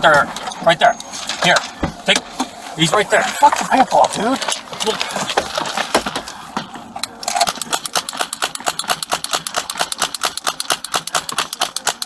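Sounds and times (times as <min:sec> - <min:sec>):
gear thudding and rattling: 0:03.3 - 0:12.0.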